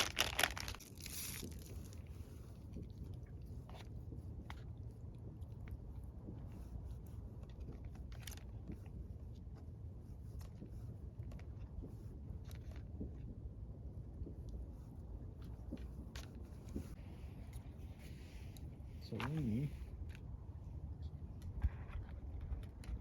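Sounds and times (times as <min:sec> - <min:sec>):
plastic packaging crinkling: 0:00.0 - 0:02.0.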